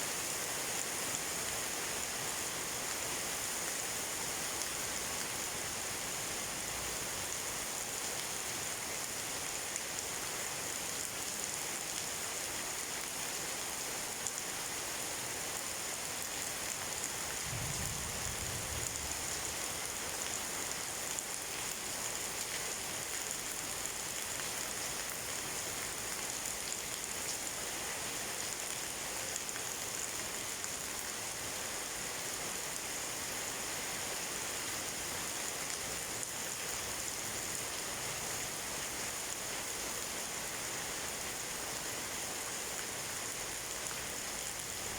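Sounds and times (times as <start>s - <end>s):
steady rainfall: 0.0s - 44.9s
distant thunder rumble: 17.4s - 19.9s.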